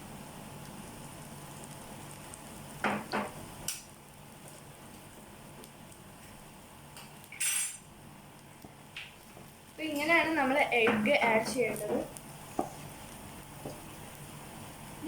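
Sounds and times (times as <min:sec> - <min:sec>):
food sizzling in a pan: 0:06.8 - 0:08.0.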